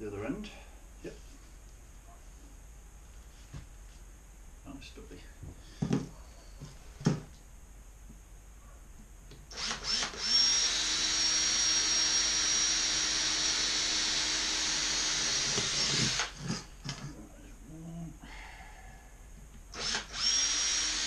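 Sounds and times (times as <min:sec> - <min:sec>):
electric power tool whining: 0:09.5 - 0:17.0, 0:19.7 - 0:21.0.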